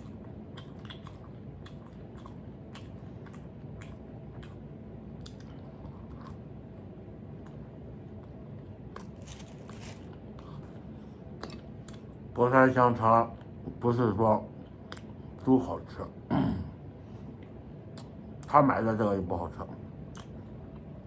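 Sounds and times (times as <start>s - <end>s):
person chewing food: 0.0s - 12.2s
steady low hum: 0.0s - 21.0s.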